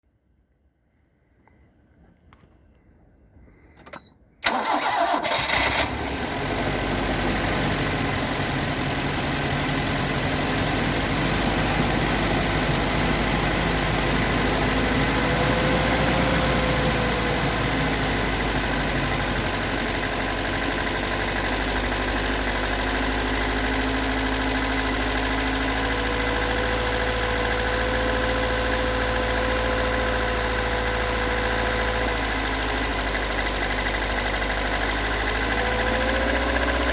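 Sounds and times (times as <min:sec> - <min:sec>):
engine cranking: 0:03.8 - 0:06.2
car engine idling: 0:04.4 - 0:36.9.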